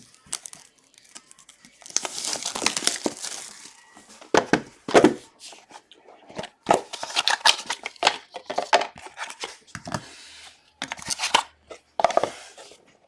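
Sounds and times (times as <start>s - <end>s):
plastic wrappers crinkling and tearing: 0.0s - 4.3s.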